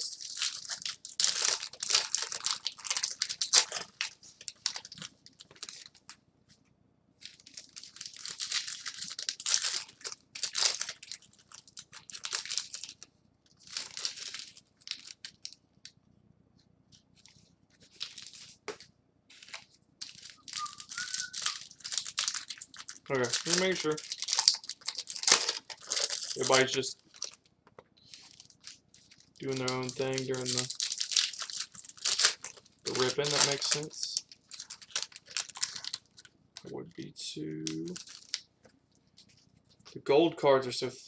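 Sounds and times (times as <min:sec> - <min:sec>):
foil wrappers tearing and crinkling: 0:00.0 - 0:06.1, 0:07.2 - 0:13.0, 0:13.6 - 0:15.6, 0:17.9 - 0:18.6, 0:19.3 - 0:27.4, 0:28.0 - 0:36.7, 0:37.7 - 0:38.4.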